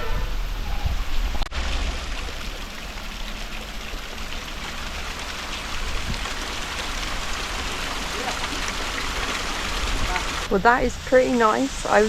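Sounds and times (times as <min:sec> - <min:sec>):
small waterfall splashing: 0:01.4 - 0:10.5.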